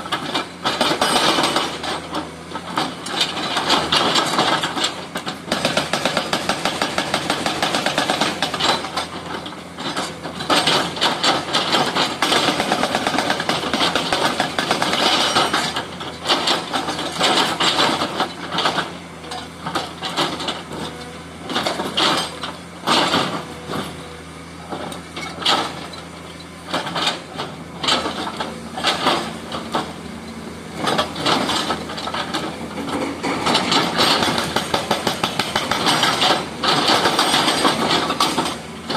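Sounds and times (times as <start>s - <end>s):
excavator engine running: 0.0s - 38.9s
hydraulic breaker hammering: 26.8s - 38.9s.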